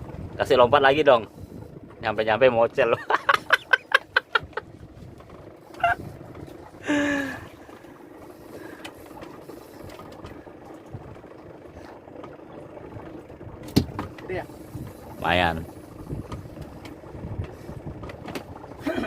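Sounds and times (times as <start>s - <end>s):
sea noise: 0.0s - 19.0s
wind: 0.0s - 19.0s
man laughing: 2.9s - 4.8s, 5.8s - 6.0s, 6.8s - 7.5s, 18.8s - 19.0s.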